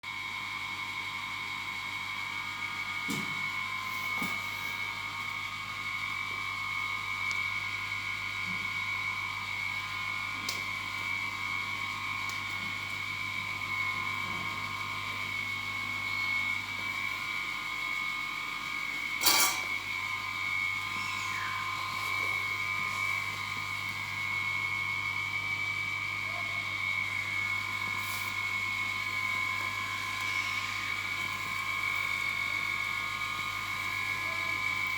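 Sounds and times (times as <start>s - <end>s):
high whine: 19.2s - 32.8s.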